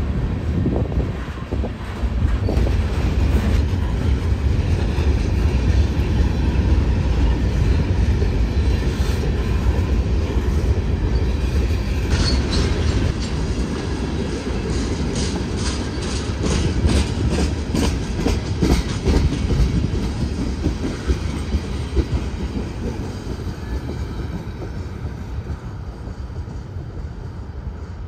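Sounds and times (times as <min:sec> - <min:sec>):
freight cars rumbling on rails: 0:00.0 - 0:28.0
wheel squeal: 0:11.1 - 0:13.0.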